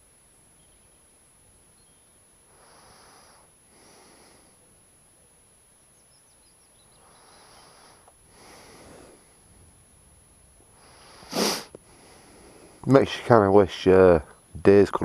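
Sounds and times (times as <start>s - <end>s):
faint bird chirps: 0.2s - 3.4s, 4.8s - 8.2s
quiet breathing: 2.5s - 4.8s, 6.8s - 9.8s, 10.6s - 12.9s.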